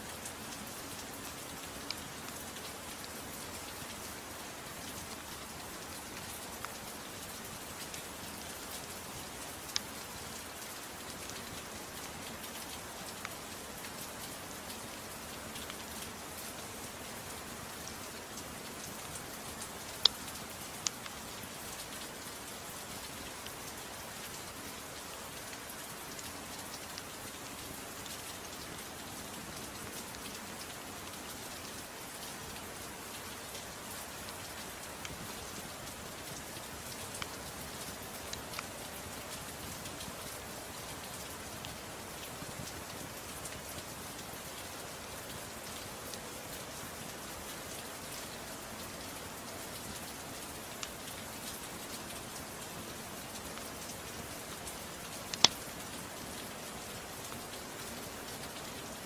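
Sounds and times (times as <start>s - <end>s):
soft rain hiss: 0.0s - 59.0s
wood fire crackling: 55.3s - 55.6s.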